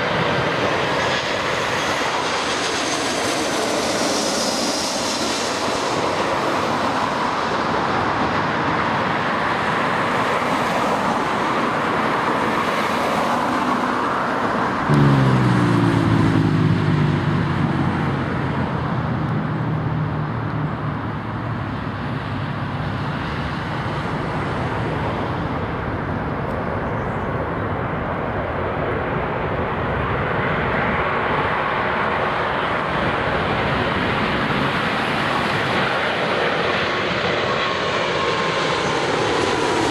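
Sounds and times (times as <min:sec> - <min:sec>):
jet engines running: 0:00.0 - 0:39.9
tones sliding down in pitch: 0:14.9 - 0:16.7.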